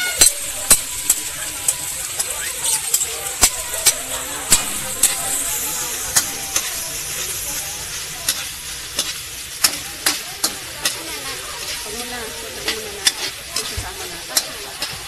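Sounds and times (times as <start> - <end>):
ham sizzling in butter: 0.0 - 15.0
metal spoon scraping a wok: 0.0 - 15.0.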